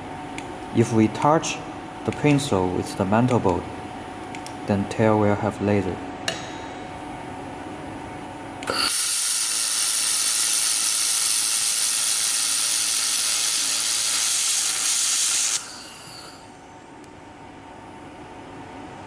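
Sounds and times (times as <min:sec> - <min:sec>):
laser welding hiss: 0:08.7 - 0:16.6.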